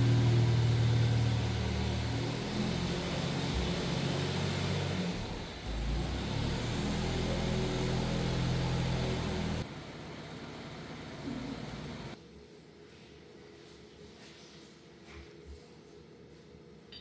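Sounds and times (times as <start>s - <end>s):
forklift engine running: 0.0s - 12.2s.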